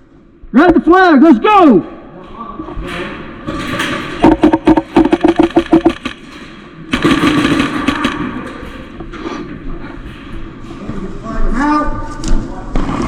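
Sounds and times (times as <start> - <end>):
airsoft gun rapid firing: 4.2 - 6.3, 6.9 - 8.6.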